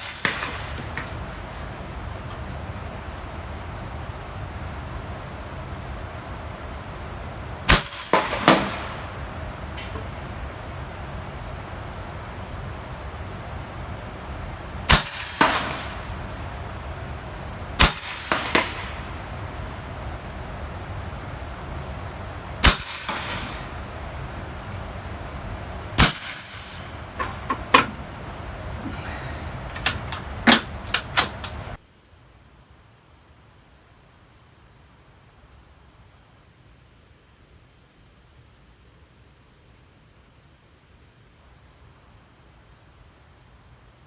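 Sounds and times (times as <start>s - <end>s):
air rifle shots: 0.0s - 1.7s, 7.7s - 10.5s, 14.9s - 16.5s, 17.8s - 19.8s, 22.6s - 24.4s, 25.4s - 31.8s.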